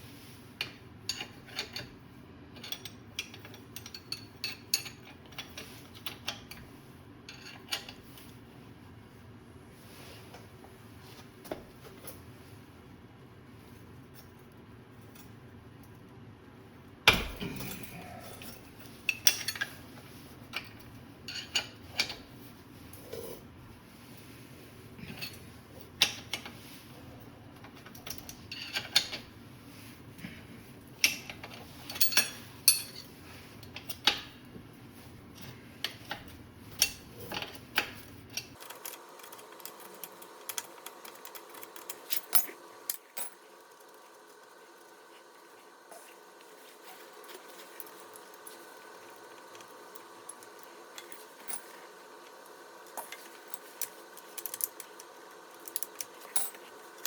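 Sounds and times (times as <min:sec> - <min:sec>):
metal tools clinking: 0:31.8 - 0:33.1, 0:55.6 - 0:57.0.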